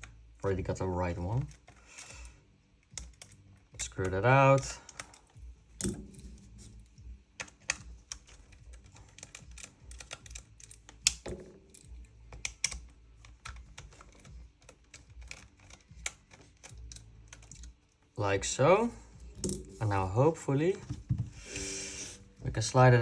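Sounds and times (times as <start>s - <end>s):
hex key clicking on screws: 7.4s - 18.1s.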